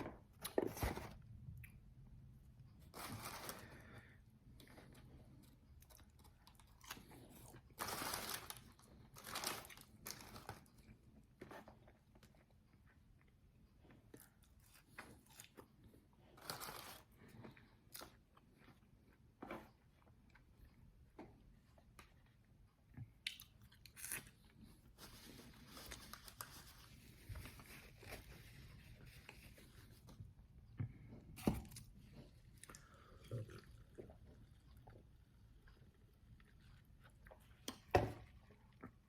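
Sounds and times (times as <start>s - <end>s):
soft chewing: 8.6s - 39.0s.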